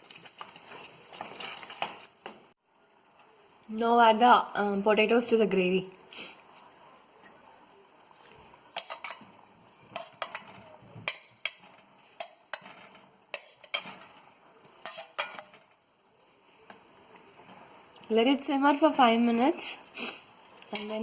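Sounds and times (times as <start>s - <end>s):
spoon scraping a cooking pan: 8.7s - 15.7s, 20.0s - 21.0s.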